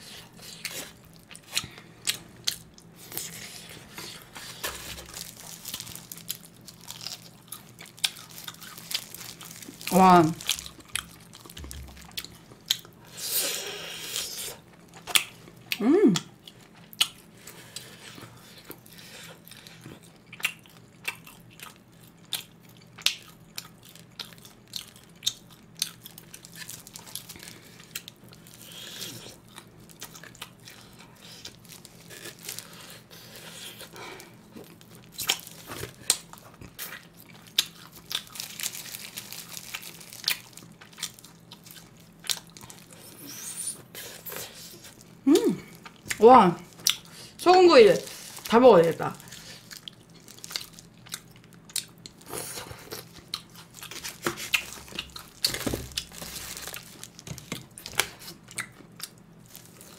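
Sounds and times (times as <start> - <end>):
chewing and biting meat: 14.7 - 46.2, 49.3 - 59.9.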